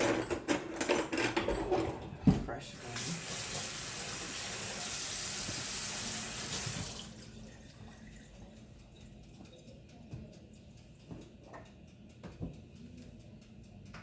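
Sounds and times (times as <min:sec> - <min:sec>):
tap running into a sink: 0:03.0 - 0:07.2.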